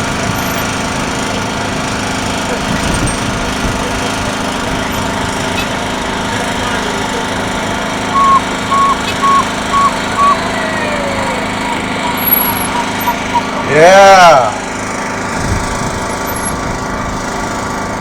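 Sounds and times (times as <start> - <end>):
horn beeping: 0.0 - 17.0
motorbike engines droning: 0.0 - 18.0.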